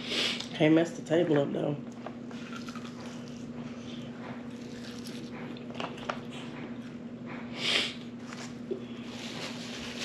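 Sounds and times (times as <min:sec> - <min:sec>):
steady low hum: 0:00.0 - 0:10.0
wet chewing and mouth smacks: 0:02.3 - 0:07.0.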